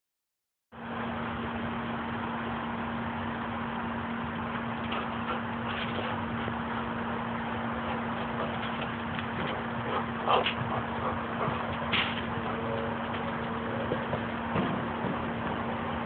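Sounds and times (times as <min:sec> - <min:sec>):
constant low hum: 0:00.8 - 0:16.0.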